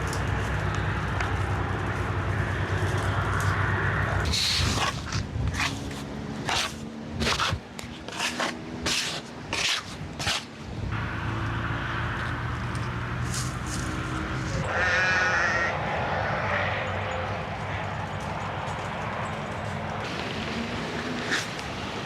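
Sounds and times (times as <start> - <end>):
livestock bleating: 14.6 - 17.4.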